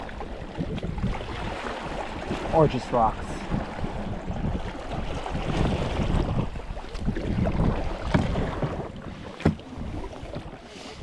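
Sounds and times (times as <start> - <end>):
water sloshing around kayak: 0.0 - 11.0
wind buffeting microphone: 0.0 - 11.0.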